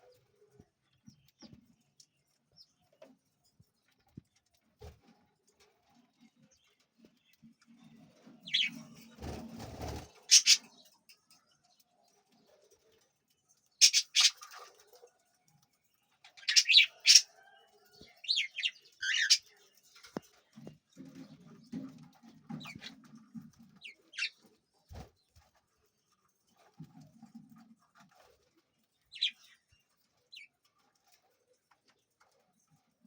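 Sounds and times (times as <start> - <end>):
cockatiels chirping: 10.3 - 10.7, 13.8 - 14.4, 18.4 - 19.4.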